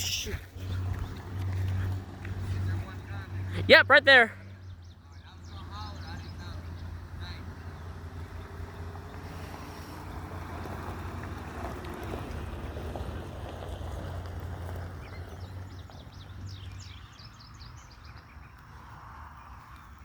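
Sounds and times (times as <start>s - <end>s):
high bird chirps: 0.0s - 0.4s
passing motor vehicle rumble: 0.0s - 20.0s.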